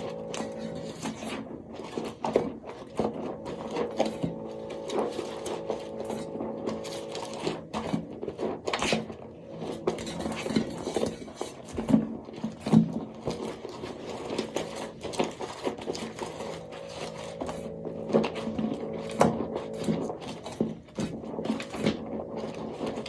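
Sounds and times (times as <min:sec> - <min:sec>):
steady low hum: 0:00.0 - 0:11.7, 0:16.2 - 0:23.0
soap crackling and scraping: 0:00.0 - 0:23.0.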